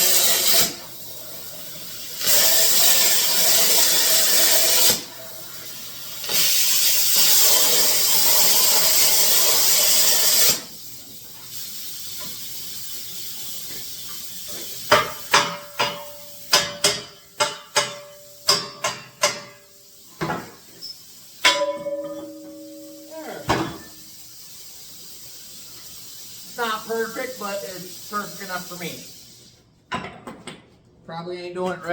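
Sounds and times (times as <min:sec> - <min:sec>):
plasma cutter hissing: 0:00.0 - 0:01.1, 0:02.1 - 0:10.9, 0:22.3 - 0:29.5
sharp metallic knocks ringing: 0:15.0 - 0:19.6, 0:21.4 - 0:24.0.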